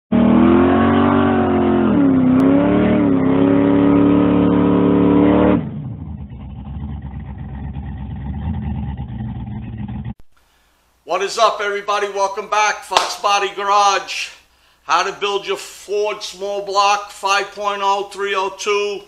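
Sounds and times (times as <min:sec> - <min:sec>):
car engine running: 0:00.1 - 0:10.2.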